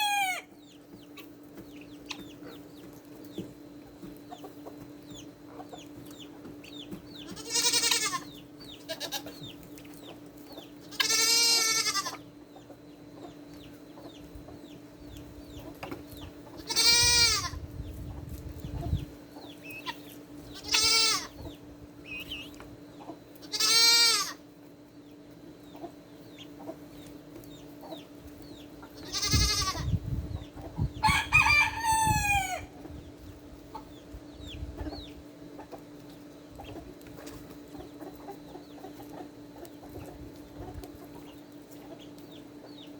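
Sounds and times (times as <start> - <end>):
loud poultry calls: 0.0 - 1.3, 6.9 - 9.6, 10.7 - 12.4, 16.4 - 17.7, 19.6 - 24.5, 28.8 - 30.0, 30.7 - 32.9
hens clucking: 0.0 - 42.9
steady low hum: 0.0 - 42.9.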